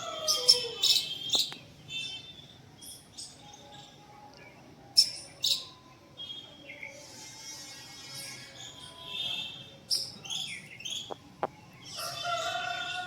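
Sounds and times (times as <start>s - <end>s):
small birds chirping: 0.4s - 1.7s.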